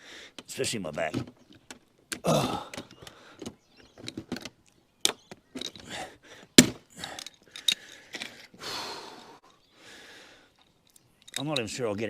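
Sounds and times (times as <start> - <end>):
breathy noise: 2.2 - 3.6, 5.7 - 10.7.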